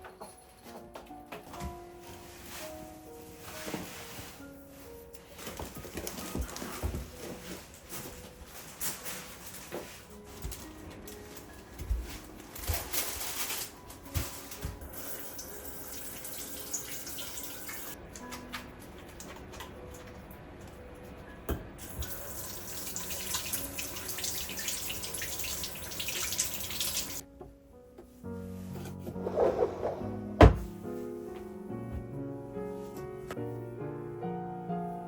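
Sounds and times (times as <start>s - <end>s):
soft music: 0.0s - 35.0s
tap water running into sink: 14.9s - 18.0s, 21.8s - 27.2s.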